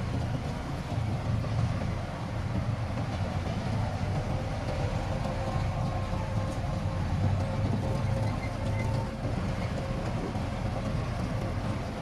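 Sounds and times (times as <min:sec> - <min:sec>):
diesel machinery engine rumble: 0:00.0 - 0:12.0.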